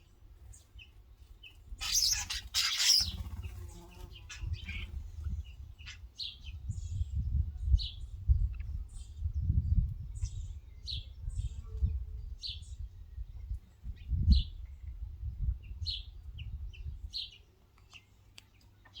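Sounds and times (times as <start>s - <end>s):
birds chirping: 0.6s - 8.1s.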